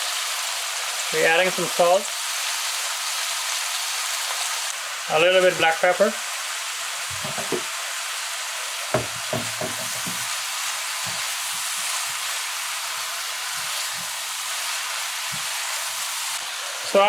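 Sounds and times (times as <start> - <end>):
vegetables sizzling in oil: 0.0 - 17.0
spoon knocking and scraping pan: 7.1 - 7.7, 9.0 - 14.5, 15.2 - 15.7.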